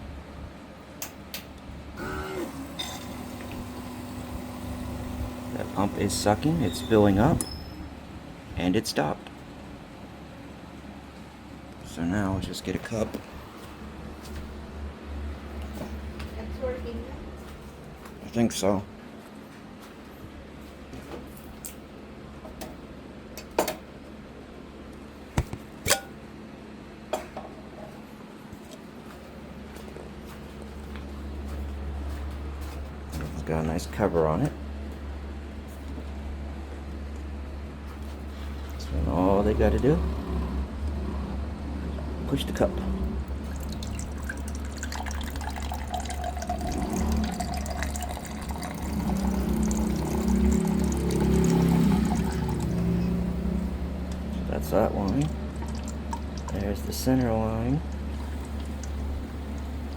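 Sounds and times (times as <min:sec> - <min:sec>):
steady low hum: 0:03.6 - 0:59.9
water pouring into a cup: 0:43.2 - 0:59.9.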